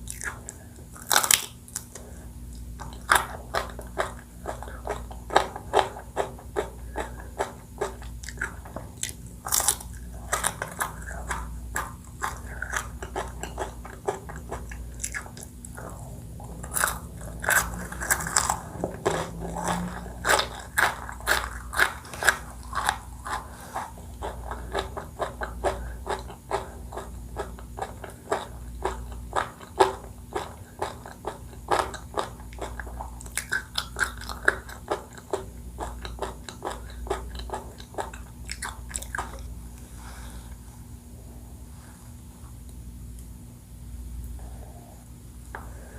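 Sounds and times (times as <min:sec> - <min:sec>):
crunchy bites: 0:00.0 - 0:02.0
wet chewing: 0:00.0 - 0:39.9.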